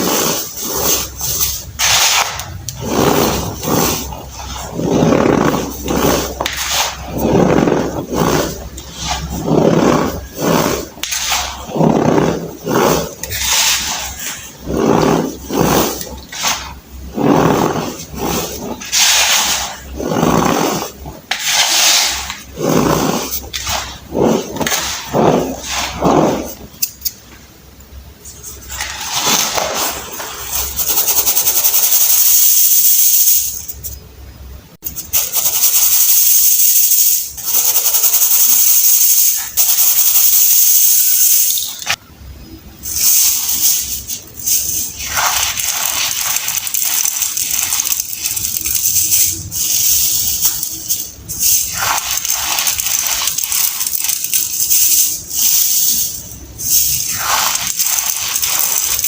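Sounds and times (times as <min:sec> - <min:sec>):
baking soda crunching by hand: 0:00.0 - 0:26.7, 0:42.8 - 0:59.0.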